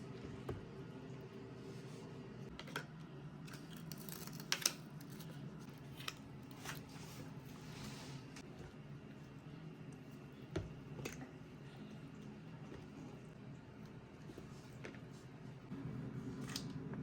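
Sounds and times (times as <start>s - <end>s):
steady low hum: 4.6s - 17.0s.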